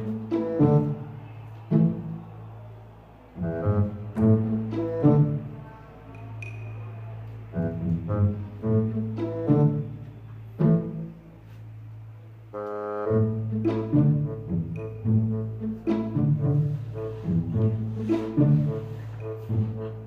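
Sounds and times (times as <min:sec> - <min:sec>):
plucked and bowed string notes: 0:12.6 - 0:20.0.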